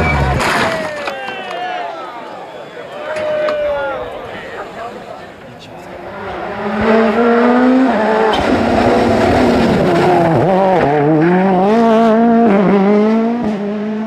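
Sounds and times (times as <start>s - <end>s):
rally car engine revving: 5.7s - 14.0s.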